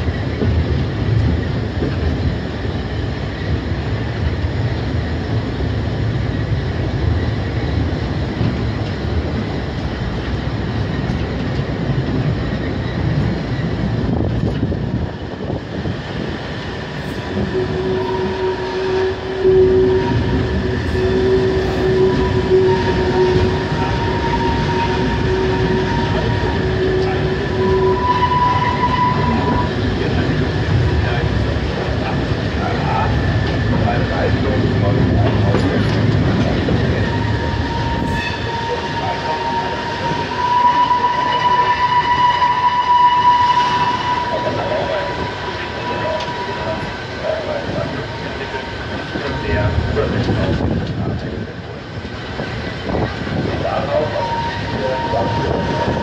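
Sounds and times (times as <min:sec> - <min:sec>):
train wheels rumbling on rails: 0:00.0 - 0:56.0
high wheel squeal: 0:17.1 - 0:31.9, 0:32.6 - 0:50.6, 0:53.7 - 0:56.0.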